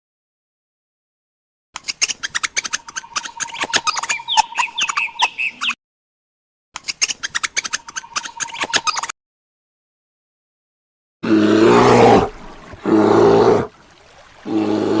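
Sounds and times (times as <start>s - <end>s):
birds chirping and squawking: 1.9s - 5.8s, 6.8s - 9.1s.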